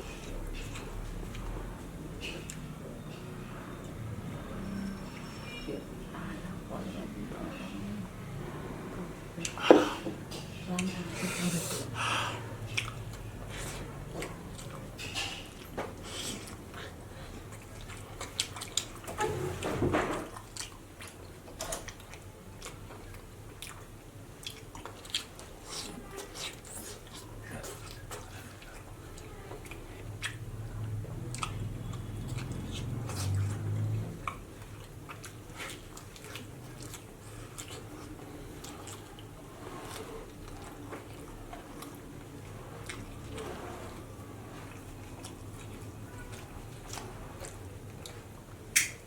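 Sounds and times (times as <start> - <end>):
chewing and biting: 12.7 - 49.0
wet mouth clicks and crunches: 46.9 - 49.0.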